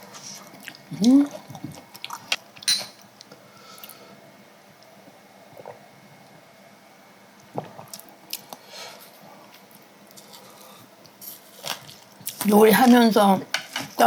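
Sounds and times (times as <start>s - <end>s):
person chewing: 0.0s - 4.0s, 7.6s - 8.6s, 9.5s - 12.5s.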